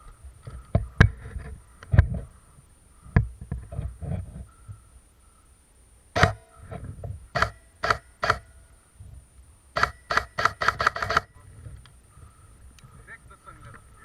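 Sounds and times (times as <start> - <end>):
airsoft gun shots: 6.2 - 8.6, 9.8 - 11.3.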